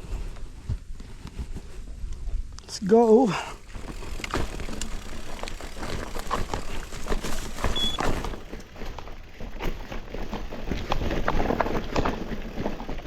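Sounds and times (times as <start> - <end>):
bike frame and chain rattling: 3.0 - 13.0
bike tyres knocking on rocks: 3.4 - 12.8.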